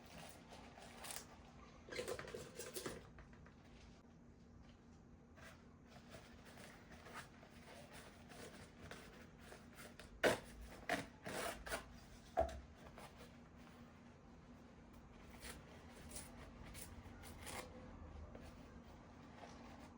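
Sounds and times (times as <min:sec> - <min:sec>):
soft rustling and rubbing: 0:12.8 - 0:19.9.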